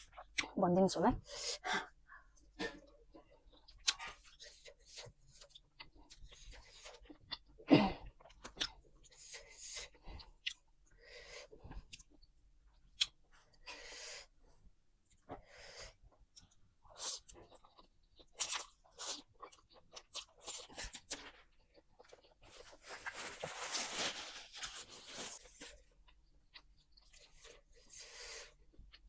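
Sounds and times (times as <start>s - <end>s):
person chewing: 3.0s - 13.8s, 15.9s - 23.5s, 24.8s - 29.0s.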